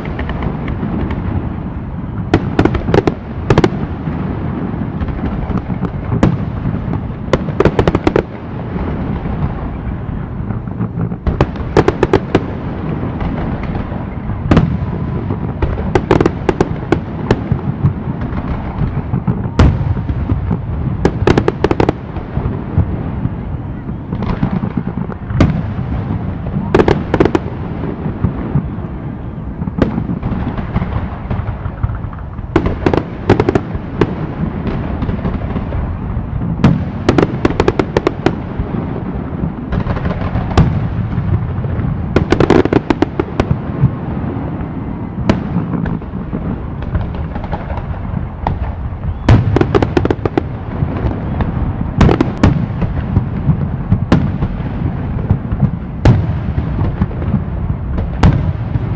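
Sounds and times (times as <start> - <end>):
firework shells bursting: 0.0 - 1.6.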